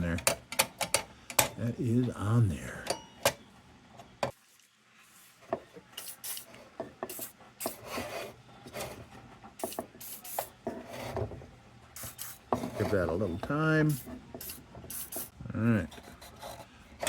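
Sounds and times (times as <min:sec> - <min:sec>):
metal parts scraping: 0:12.0 - 0:17.0.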